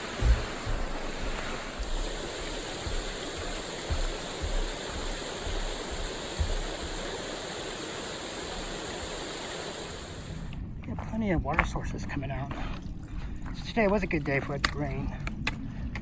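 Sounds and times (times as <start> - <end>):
low thumps: 0.0 - 7.2
mountain stream running water: 0.0 - 16.0.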